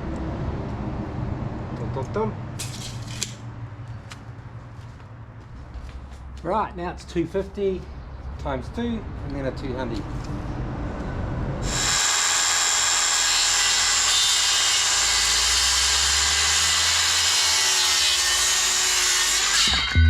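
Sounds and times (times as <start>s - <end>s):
power saw cutting wood: 11.6s - 20.0s.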